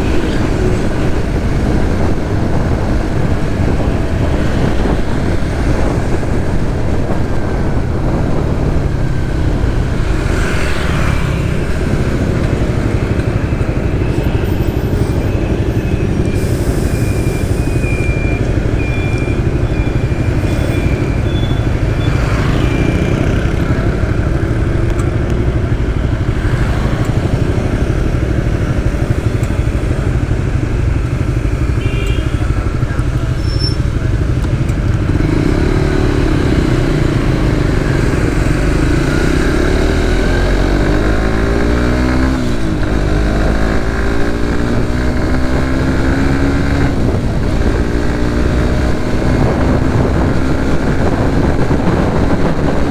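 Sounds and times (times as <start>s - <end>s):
motorcycle engine running: 0.0s - 16.5s, 17.1s - 52.9s
wind rush: 0.0s - 17.9s, 36.0s - 52.9s
traffic noise: 0.0s - 52.9s
short high beeps: 16.3s - 23.2s.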